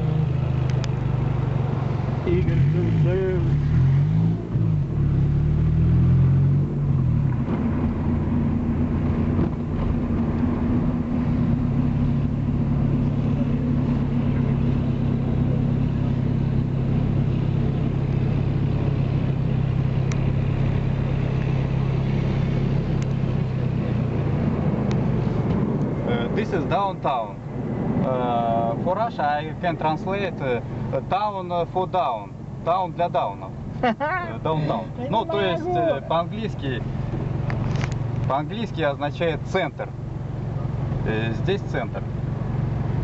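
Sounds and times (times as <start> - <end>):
car engine hum: 0.0 - 43.0
tyres rumbling: 33.3 - 43.0.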